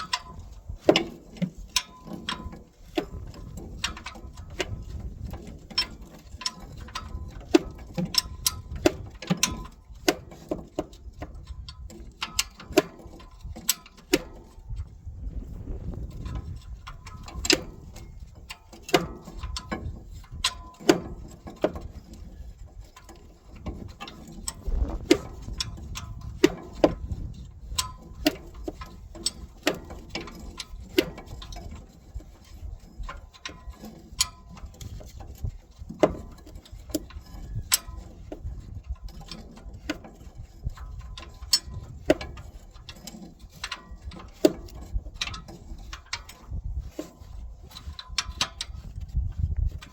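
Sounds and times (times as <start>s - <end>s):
low rumble: 14.7s - 18.2s, 24.5s - 26.3s.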